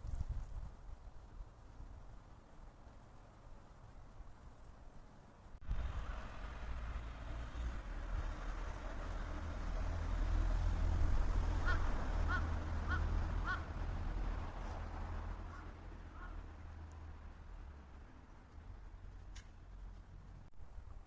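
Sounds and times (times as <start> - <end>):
bird calling: 11.6 - 13.7, 15.5 - 16.4.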